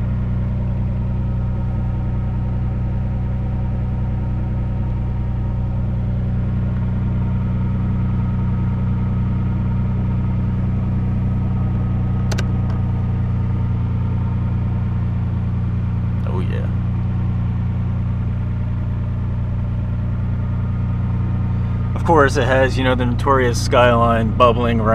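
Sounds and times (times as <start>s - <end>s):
car engine idling: 0.0s - 24.9s
sharp click: 12.2s - 12.8s.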